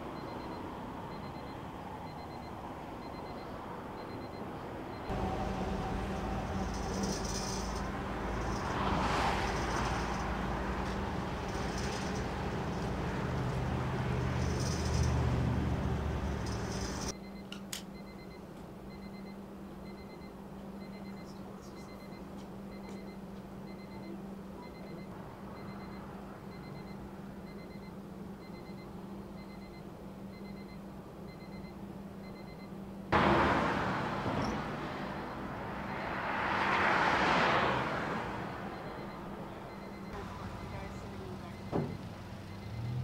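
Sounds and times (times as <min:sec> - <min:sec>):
highway traffic rushing: 0:00.0 - 0:17.2, 0:33.1 - 0:43.0
faint high beep: 0:00.2 - 0:05.5, 0:16.4 - 0:32.7, 0:38.6 - 0:43.0
steady low hum: 0:05.0 - 0:17.4
vehicle passing: 0:05.1 - 0:17.1, 0:33.2 - 0:43.0.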